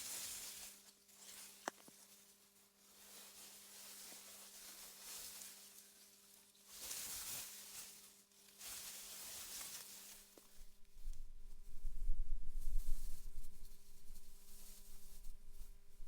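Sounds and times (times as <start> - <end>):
wind rustling through grass: 8.6 - 16.0
faint low hum: 10.6 - 16.0.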